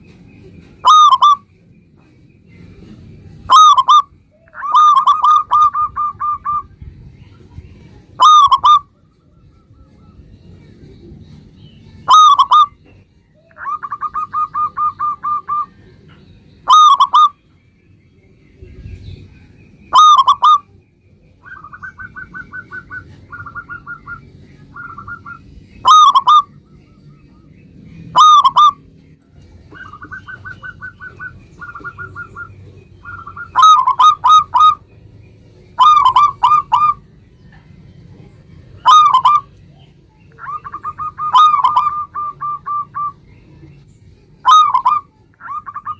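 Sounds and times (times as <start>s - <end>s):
dove cooing: 0.6s - 1.5s, 2.8s - 6.8s, 8.1s - 10.3s, 12.0s - 15.9s, 16.7s - 17.4s, 19.9s - 20.7s, 21.4s - 26.6s, 28.1s - 28.9s, 29.6s - 34.8s, 35.8s - 37.0s, 38.8s - 39.6s, 40.4s - 43.2s, 44.4s - 45.9s.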